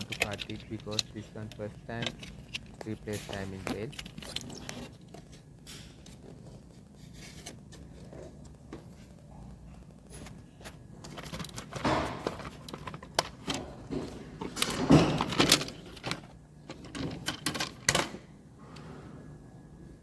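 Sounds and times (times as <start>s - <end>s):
plastic scraping and clicking: 0.0s - 6.4s.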